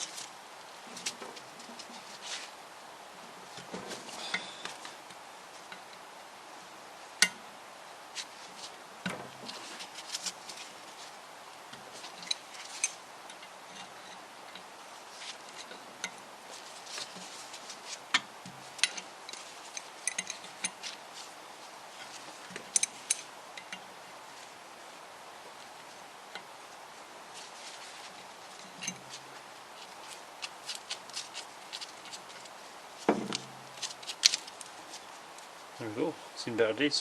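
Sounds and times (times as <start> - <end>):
metal tools clicking and clinking: 18.8 - 20.8.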